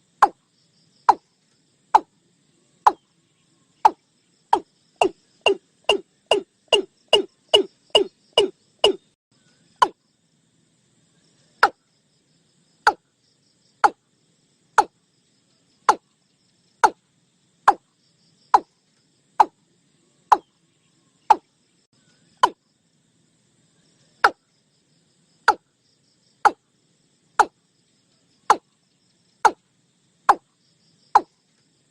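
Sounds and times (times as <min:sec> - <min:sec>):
bird calling swooping notes: 0:05.0 - 0:09.0.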